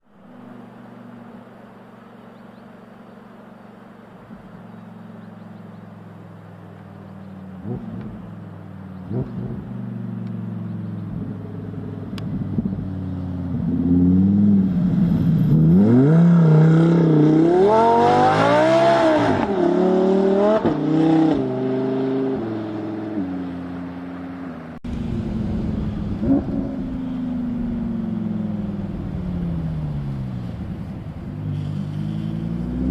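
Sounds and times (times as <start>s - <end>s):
car engine revving and accelerating: 7.2s - 32.9s.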